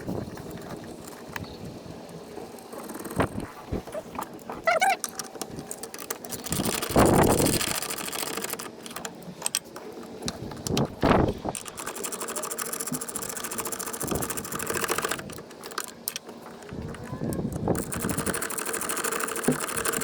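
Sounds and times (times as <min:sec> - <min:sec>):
ratchet clicking: 0:05.7 - 0:09.6, 0:11.5 - 0:20.0
ratchet knocks: 0:11.6 - 0:20.0.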